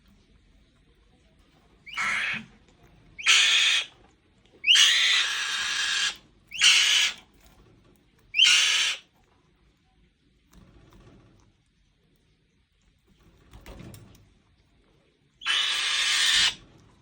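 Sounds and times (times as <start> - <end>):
falcon screeching: 1.9 - 2.5, 3.2 - 3.9, 4.6 - 7.2, 8.4 - 9.1, 15.4 - 16.6.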